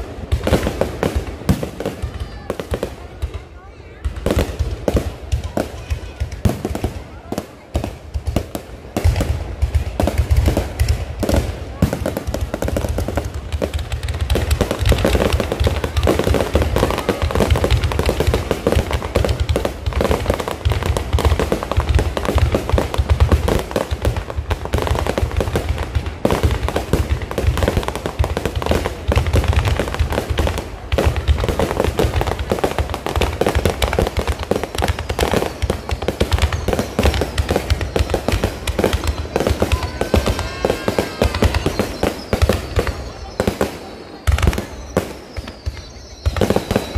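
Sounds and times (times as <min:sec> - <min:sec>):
fireworks crackling and popping: 0:00.0 - 0:46.9
heavy low fireworks booms: 0:00.0 - 0:46.9
whistling firework glides: 0:26.3 - 0:46.9.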